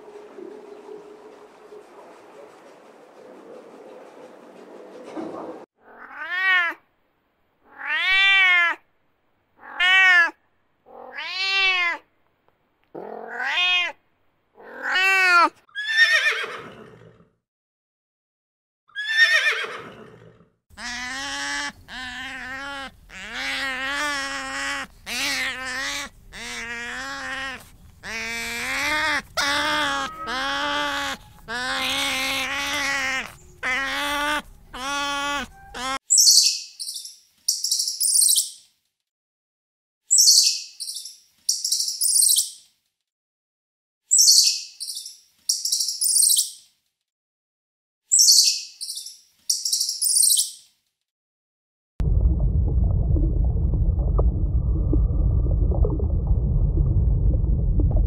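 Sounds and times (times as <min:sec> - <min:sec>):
cat meowing: 0:05.8 - 0:06.8, 0:07.7 - 0:08.8, 0:09.6 - 0:12.0, 0:13.0 - 0:14.0, 0:14.6 - 0:15.5, 0:20.8 - 0:36.0.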